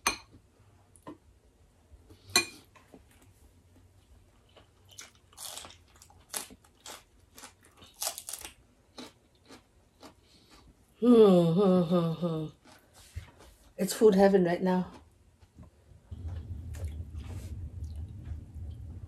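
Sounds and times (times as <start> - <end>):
people chewing crunchy food: 4.0 - 13.8.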